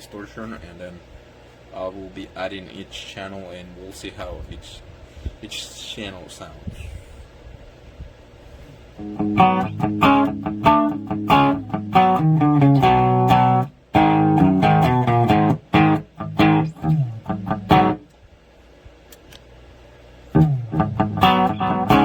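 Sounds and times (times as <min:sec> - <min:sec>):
clean electric guitar playing: 0:09.0 - 0:18.1, 0:20.3 - 0:22.0.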